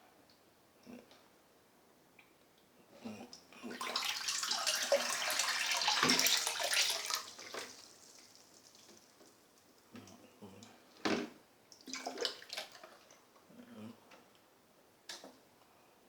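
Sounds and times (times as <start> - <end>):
water pouring into a tub: 3.8 - 9.7, 11.8 - 13.2.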